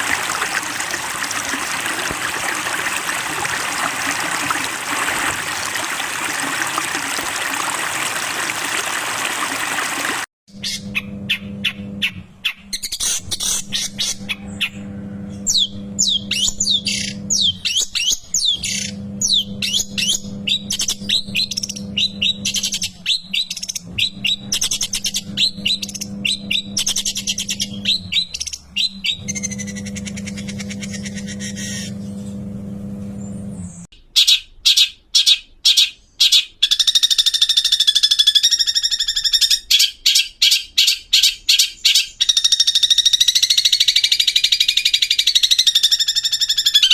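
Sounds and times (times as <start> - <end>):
bird singing chirps and whistles: 15.5 - 29.7, 33.2 - 46.9
steady low hum: 29.1 - 33.9.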